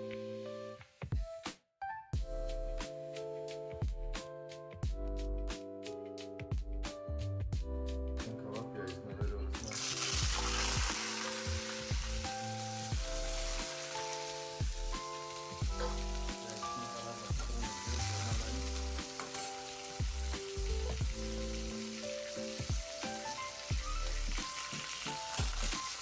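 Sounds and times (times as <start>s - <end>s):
food sizzling in hot oil: 9.6s - 26.0s.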